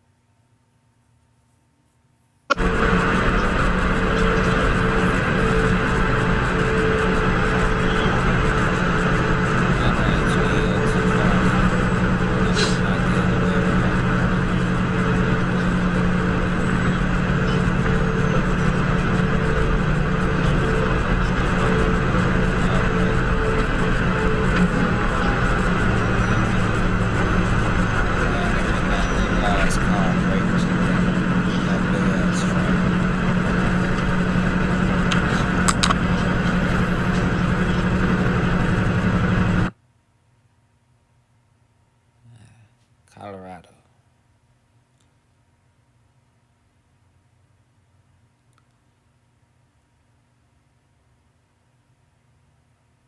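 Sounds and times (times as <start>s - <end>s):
road noise: 2.5s - 39.7s
vehicle engine drone: 2.5s - 39.7s.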